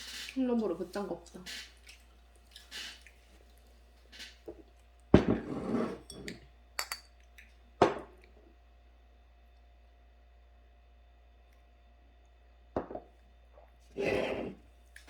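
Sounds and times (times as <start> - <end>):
dishes and cutlery clattering: 5.4 - 7.1
small clinks: 6.0 - 7.2.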